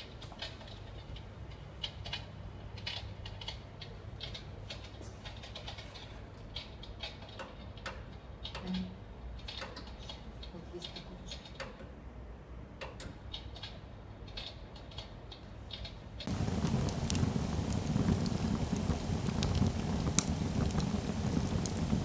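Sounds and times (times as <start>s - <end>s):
electric fireplace crackling clicks: 16.3s - 22.0s.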